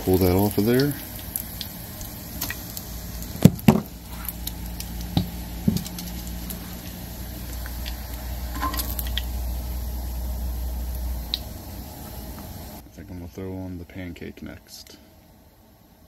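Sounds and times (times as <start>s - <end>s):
low steady hum: 0.0s - 16.0s
utensils knocking on pan: 8.6s - 9.1s.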